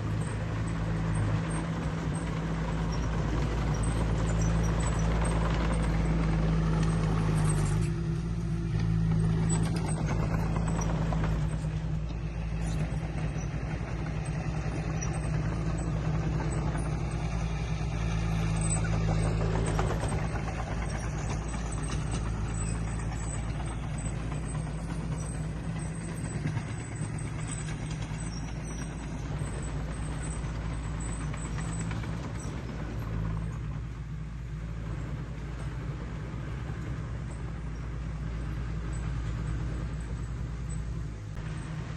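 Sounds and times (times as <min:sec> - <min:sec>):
heavy machinery diesel engine: 0:00.0 - 0:41.9.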